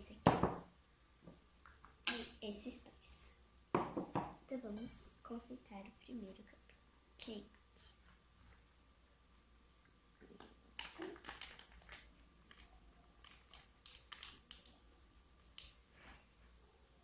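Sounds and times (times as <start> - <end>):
packaging rustling: 10.8 - 14.8.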